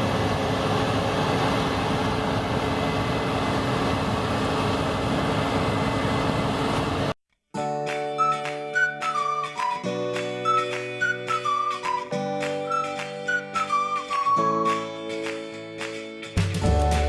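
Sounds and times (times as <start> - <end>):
combine harvester running: 0.0 - 7.2
music: 7.5 - 17.0.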